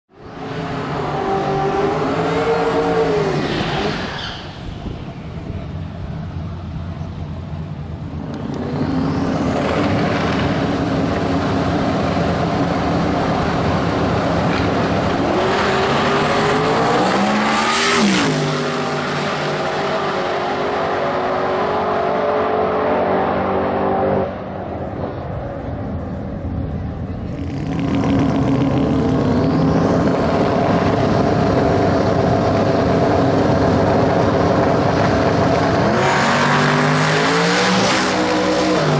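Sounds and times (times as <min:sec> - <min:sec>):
racing engine revving: 0:08.2 - 0:24.4, 0:27.2 - 0:38.9.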